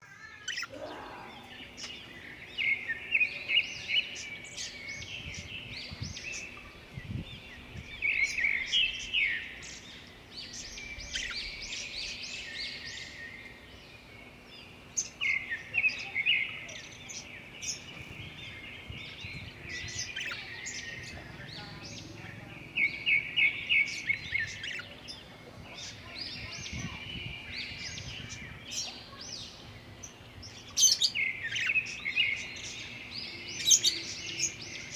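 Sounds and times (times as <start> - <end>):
budgerigar chirping and warbling: 0.2 - 1.2, 20.0 - 20.6.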